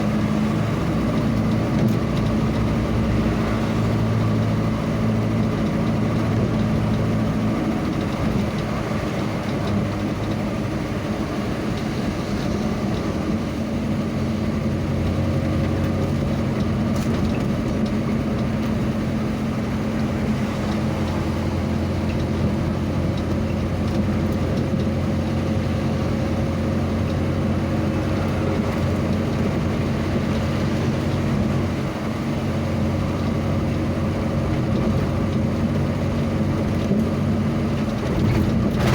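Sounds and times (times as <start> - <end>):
road noise: 0.0 - 38.9
vehicle engine drone: 0.0 - 38.9.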